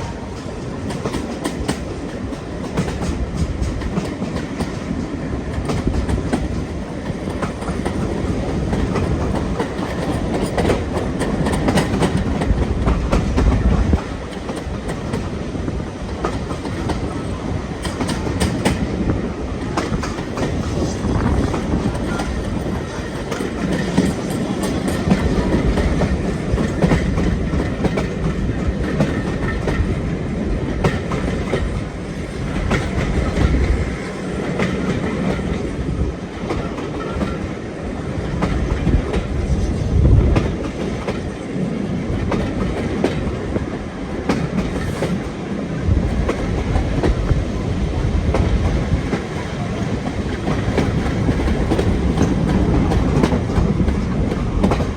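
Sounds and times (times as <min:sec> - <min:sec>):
wheels clicking over rail joints: 0:00.0 - 0:19.0, 0:40.3 - 0:54.9
train rumbling: 0:00.0 - 0:54.9.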